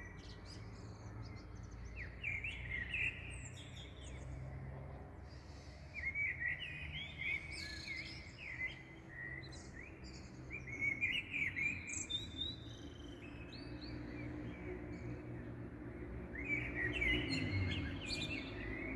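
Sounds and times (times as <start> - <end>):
songbirds chirping and singing: 0.0 - 18.9.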